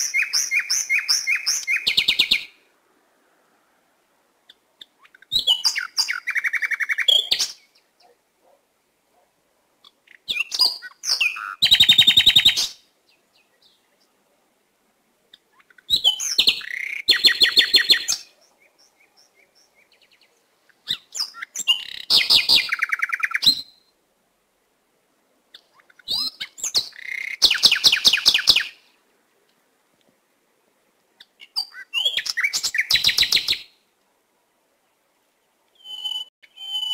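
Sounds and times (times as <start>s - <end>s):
bird chirps and trill: 0.0s - 2.5s, 4.5s - 8.2s, 9.8s - 13.8s, 15.3s - 23.9s, 25.5s - 28.8s, 31.2s - 33.7s, 35.8s - 36.9s.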